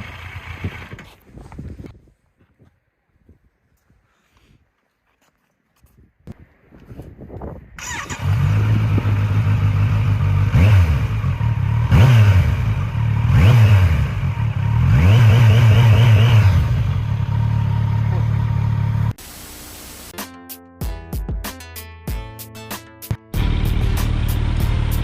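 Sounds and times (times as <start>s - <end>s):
motorcycle engine idling and revving: 0.0s - 1.9s, 7.8s - 19.2s, 23.4s - 25.0s.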